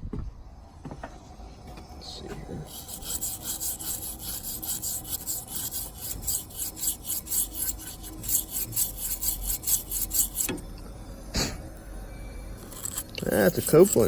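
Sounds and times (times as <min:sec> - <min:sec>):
rubbing strokes on metal: 0:02.6 - 0:10.6, 0:12.6 - 0:14.0.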